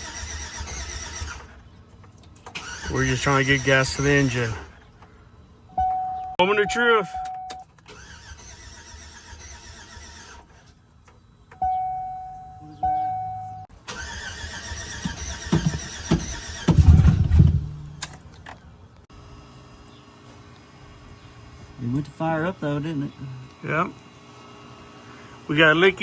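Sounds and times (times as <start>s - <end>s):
car engine cranking on starter: 0.0s - 5.0s, 7.3s - 11.9s, 12.8s - 18.6s
engine firing with low rumble: 0.0s - 19.4s
short electronic chimes: 11.6s - 13.7s.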